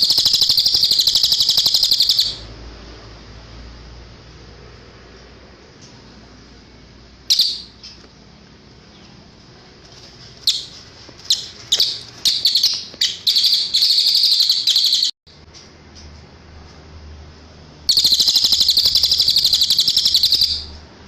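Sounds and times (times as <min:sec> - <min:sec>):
songbird trilling high notes: 0:00.0 - 0:02.5, 0:07.3 - 0:08.0, 0:10.5 - 0:15.2, 0:17.9 - 0:20.8.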